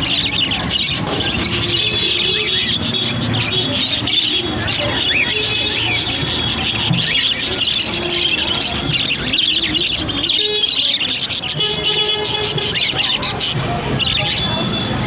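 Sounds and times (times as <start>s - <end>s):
parrots chirping and squawking: 0.0s - 14.6s.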